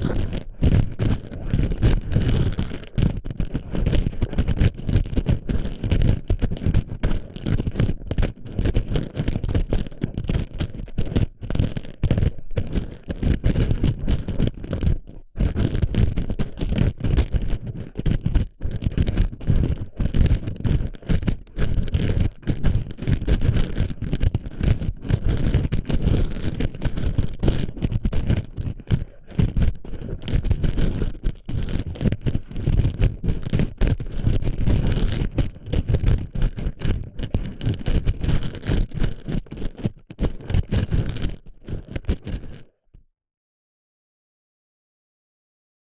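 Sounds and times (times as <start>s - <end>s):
plastic pellets rustling and rattling: 19.3s - 42.7s.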